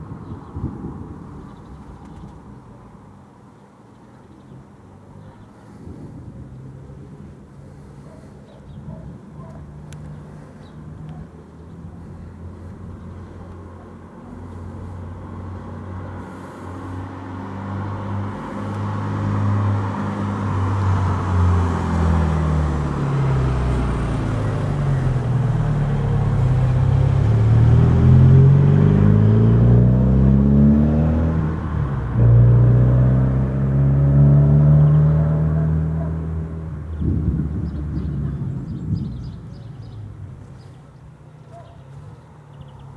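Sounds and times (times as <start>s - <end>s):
vehicle engine accelerating: 10.0s - 40.7s.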